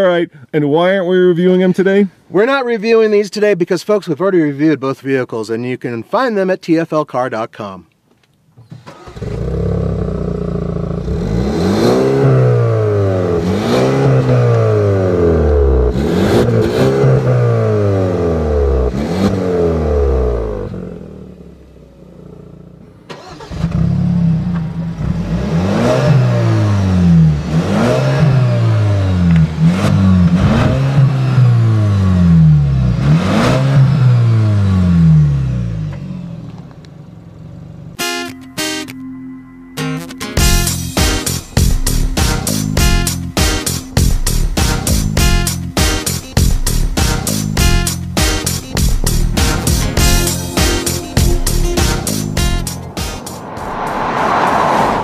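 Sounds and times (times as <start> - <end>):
car engine revving hard: 8.9 - 21.3, 23.1 - 36.4, 47.0 - 55.0.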